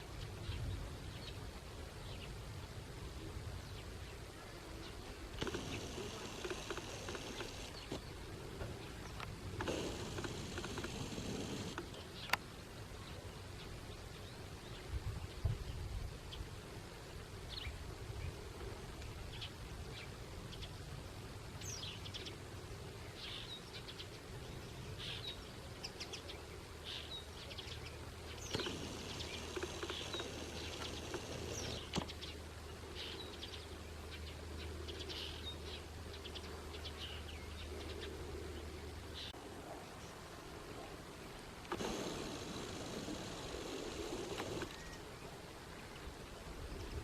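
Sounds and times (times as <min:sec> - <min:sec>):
small birds chirping: 0:03.6 - 0:16.4, 0:23.0 - 0:40.2, 0:41.2 - 0:47.0.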